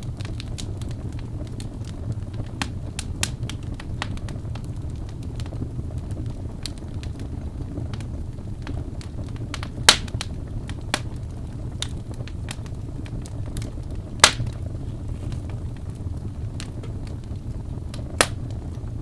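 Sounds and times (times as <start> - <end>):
wood fire crackling: 0.0 - 19.0
sharp wood pops: 9.6 - 10.2, 14.2 - 14.6.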